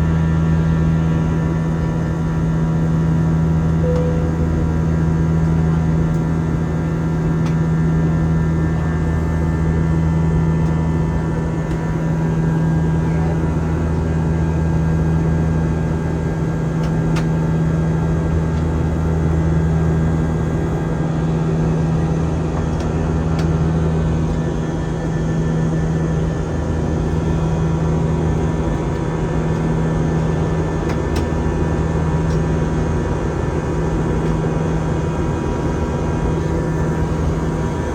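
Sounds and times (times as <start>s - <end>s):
constant low hum: 0.0s - 37.9s
jet engines droning: 3.4s - 10.4s, 21.4s - 37.9s.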